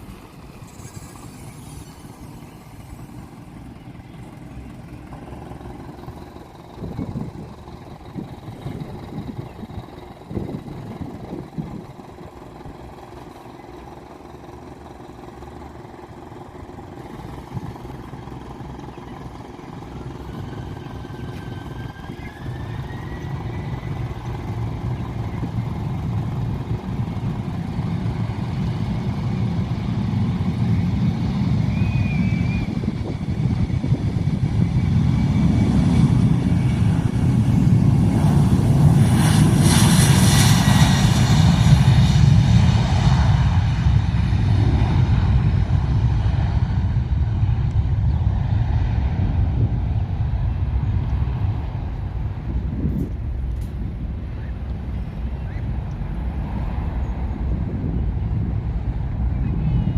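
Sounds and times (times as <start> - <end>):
aircraft engine noise: 0.0 - 59.9
rising engine whine: 0.0 - 59.9
rushing roar: 15.0 - 29.2.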